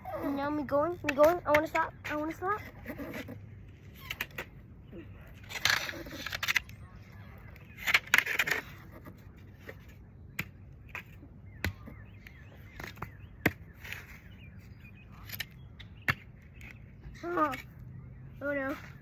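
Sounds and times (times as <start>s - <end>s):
rustling scrapes: 5.3s - 6.7s
faint bird chirps: 9.6s - 19.0s.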